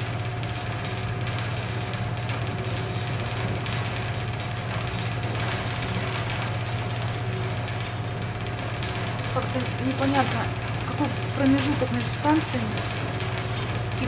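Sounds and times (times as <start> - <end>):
train running noise: 9.3 - 14.0.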